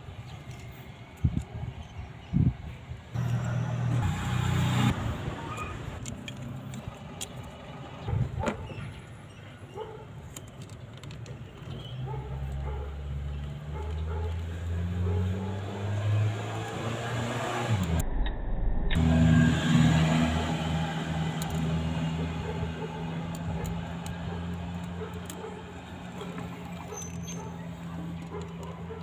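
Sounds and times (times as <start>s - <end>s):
vehicle engine running: 3.2s - 8.3s.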